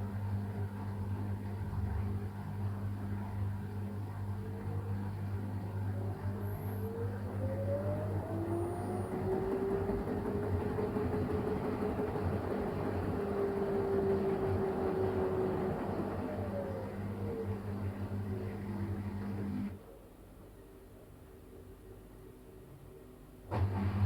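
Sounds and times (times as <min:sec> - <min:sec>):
washing machine motor whine: 0:00.8 - 0:19.8.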